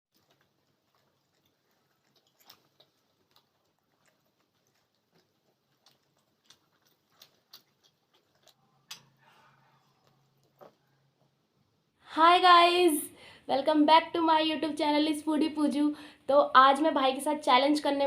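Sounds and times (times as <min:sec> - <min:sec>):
faint clicks and taps: 0:00.2 - 0:09.2, 0:09.9 - 0:11.4.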